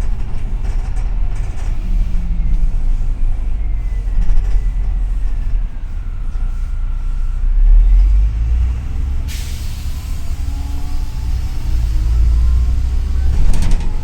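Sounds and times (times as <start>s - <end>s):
bus engine rumble with whine: 0.0s - 14.0s
compressed air hiss: 9.2s - 13.2s.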